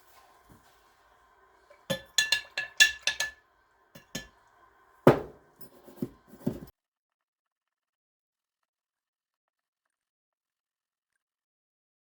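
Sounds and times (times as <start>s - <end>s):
metal objects clinking: 1.9s - 3.4s
heavy knock: 5.1s - 5.4s.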